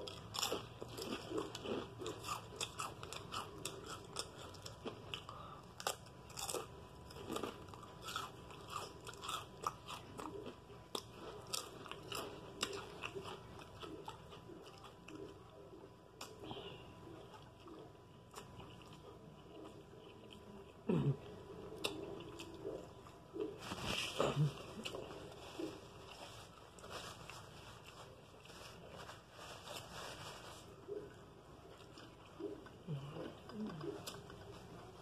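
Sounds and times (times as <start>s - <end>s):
person chewing crunchy food: 0.0s - 35.0s.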